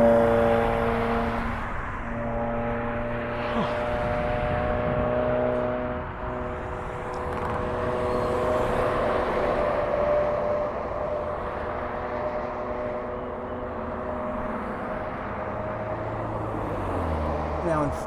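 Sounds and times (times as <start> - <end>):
humming tones: 0.0 - 17.2
engine drone: 0.0 - 18.0
wind rumble on microphone: 2.8 - 11.6.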